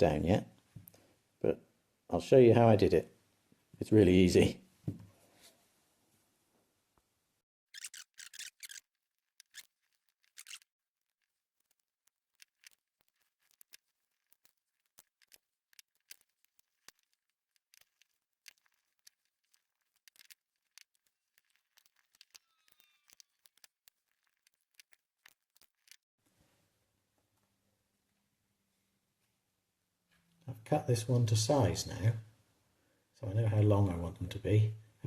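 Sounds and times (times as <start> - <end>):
leather being cut: 7.7 - 26.0.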